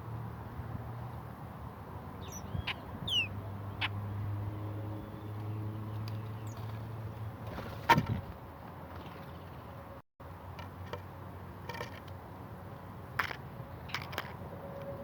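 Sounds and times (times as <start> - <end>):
birds calling: 2.1 - 4.0, 4.6 - 6.8.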